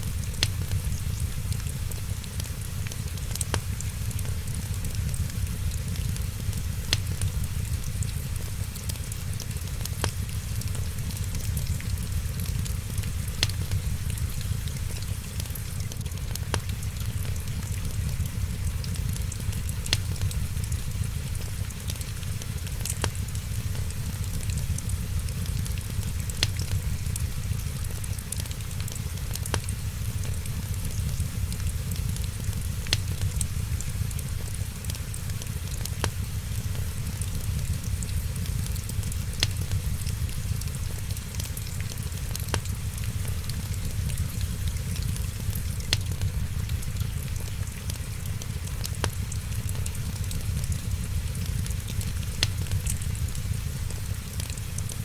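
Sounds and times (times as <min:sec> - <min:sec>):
fire rumble and hiss: 0:00.0 - 0:55.0
wood fire crackling: 0:00.0 - 0:55.0.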